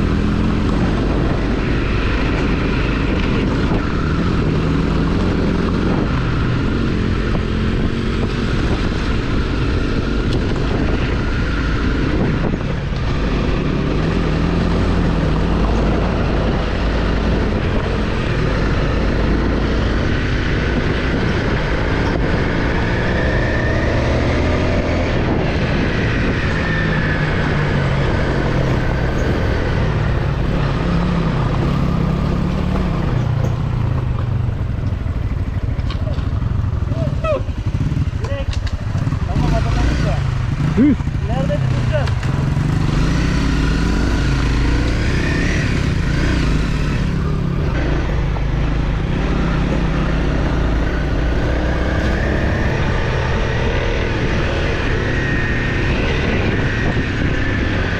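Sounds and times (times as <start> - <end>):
dirt bike engine revving: 36.8 - 57.9.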